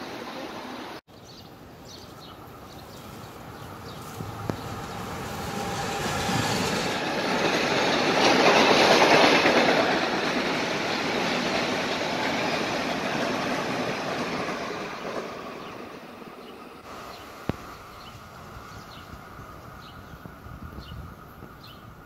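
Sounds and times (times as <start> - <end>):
train wheels clattering over rails: 3.6 - 16.0.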